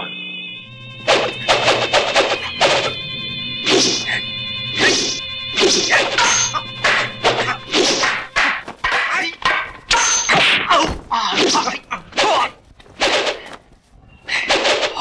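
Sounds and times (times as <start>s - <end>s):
background film music: 0.4s - 10.7s
wooden staffs striking: 4.8s - 13.6s, 14.3s - 15.0s.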